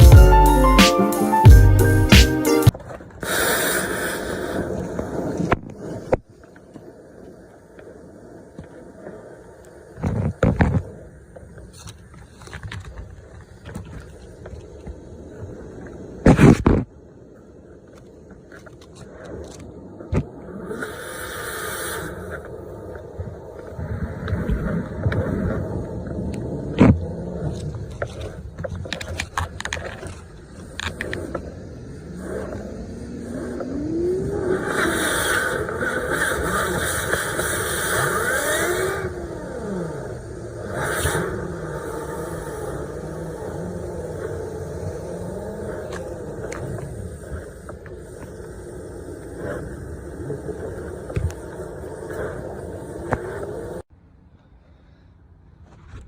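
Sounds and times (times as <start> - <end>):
motor speeding up and slowing: 30.4 - 53.8.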